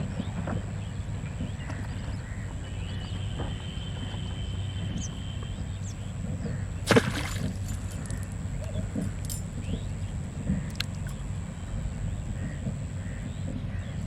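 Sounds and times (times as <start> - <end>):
water splash: 6.8 - 8.3.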